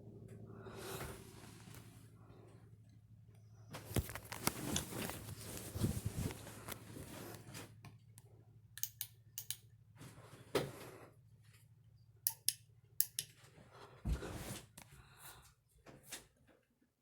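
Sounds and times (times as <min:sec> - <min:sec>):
ceiling fan humming: 0:00.0 - 0:15.6
sharp clicks and taps: 0:08.8 - 0:09.6.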